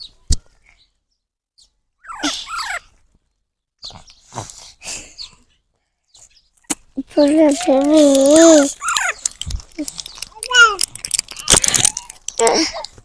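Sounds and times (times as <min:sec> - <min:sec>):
parrot squealing calls: 0:02.0 - 0:02.9, 0:08.8 - 0:09.2.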